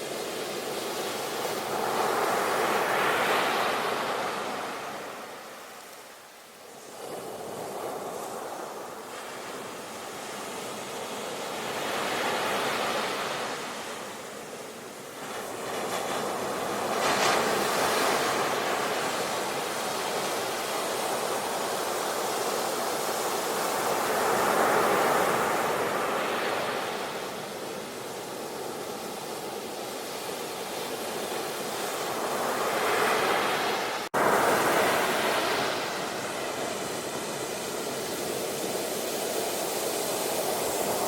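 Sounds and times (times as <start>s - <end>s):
sea waves breaking: 15.1s - 41.0s.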